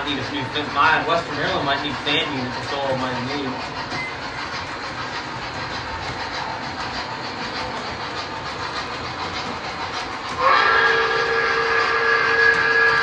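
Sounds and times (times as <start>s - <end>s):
model train wheels clacking: 0.0s - 13.0s
train horn chord: 10.3s - 13.0s.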